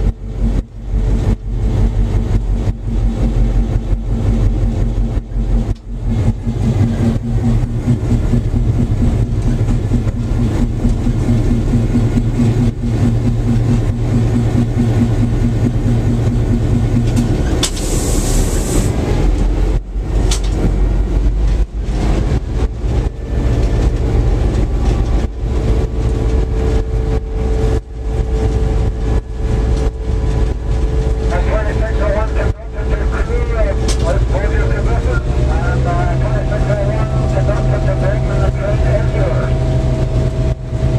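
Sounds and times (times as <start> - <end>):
diesel locomotive engine rumble: 0.0 - 40.9
rapid pulsing tone: 0.0 - 40.9.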